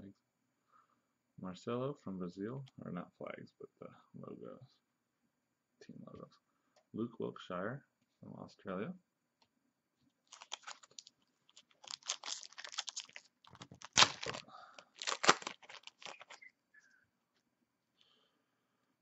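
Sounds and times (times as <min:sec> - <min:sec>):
foil wrapper tearing and crinkling: 0:10.3 - 0:16.4.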